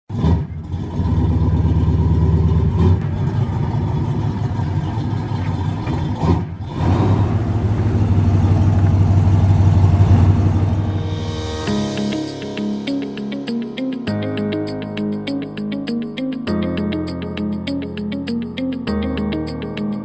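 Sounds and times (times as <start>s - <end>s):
engine running: 0.1s - 11.9s.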